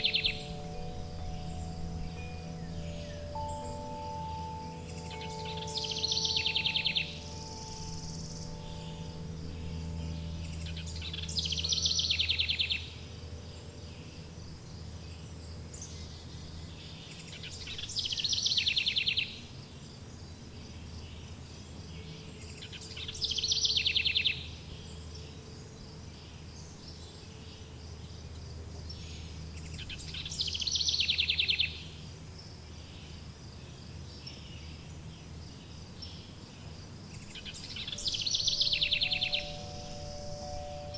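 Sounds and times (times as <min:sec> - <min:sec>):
wind chime tones: 0:00.0 - 0:15.0, 0:37.7 - 0:40.9
low ambient rumble: 0:00.0 - 0:18.4, 0:34.2 - 0:40.9
high insect drone: 0:00.0 - 0:40.9
songbird trilled song: 0:00.0 - 0:40.9.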